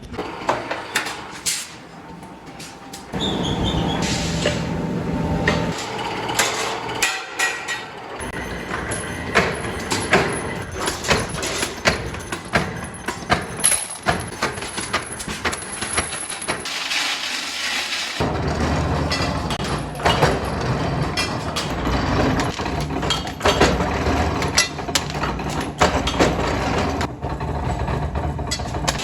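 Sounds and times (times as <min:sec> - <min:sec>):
machine humming: 0:00.0 - 0:10.8
metal knocks and clanks: 0:00.2 - 0:16.7, 0:18.2 - 0:29.0.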